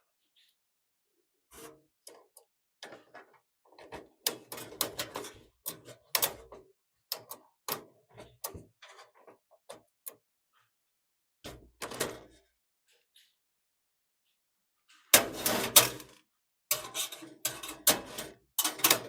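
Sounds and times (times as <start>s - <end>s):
computer parts clicking and clattering: 2.8s - 6.5s, 15.2s - 16.1s, 16.7s - 19.0s.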